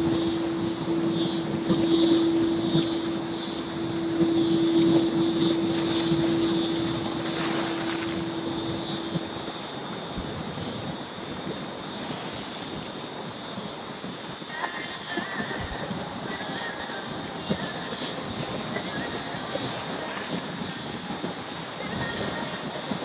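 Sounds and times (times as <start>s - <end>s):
faint engine rumble: 0.0s - 12.9s
engine drone with hum tone: 0.0s - 23.0s.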